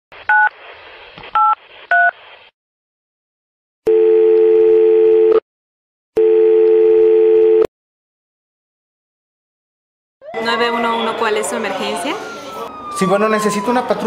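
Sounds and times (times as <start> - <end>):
telephone keypad tones: 6.2 - 7.7.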